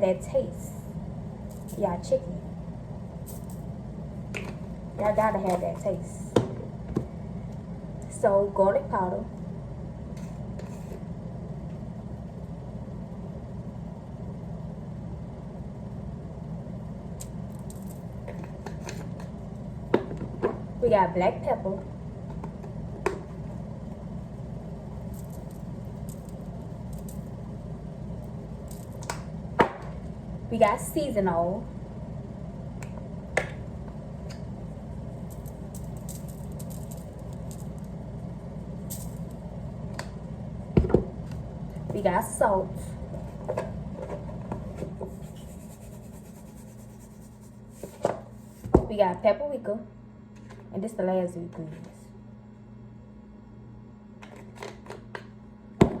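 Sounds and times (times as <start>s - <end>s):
steady low hum: 0.0s - 56.0s
seasoning shaker rattling: 1.4s - 1.8s, 3.3s - 3.7s, 17.5s - 18.1s, 25.0s - 27.3s, 28.6s - 29.0s, 35.2s - 37.9s, 38.9s - 39.3s, 45.1s - 48.6s.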